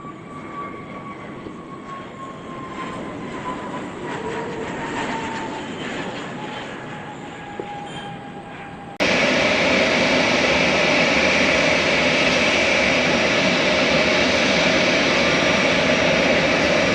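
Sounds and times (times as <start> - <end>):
jet airliner engines whining: 0.0 - 16.9
rushing noise: 9.0 - 16.9.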